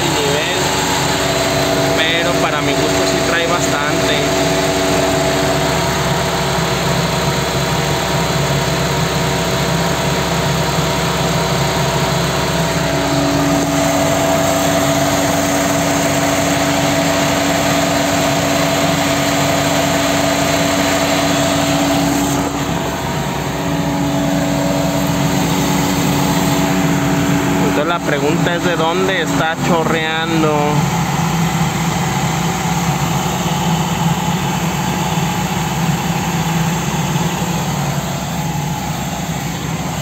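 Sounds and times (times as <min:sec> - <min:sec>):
steady tone: 0:00.0 - 0:07.2, 0:12.4 - 0:30.0
car engine idling: 0:00.0 - 0:40.0.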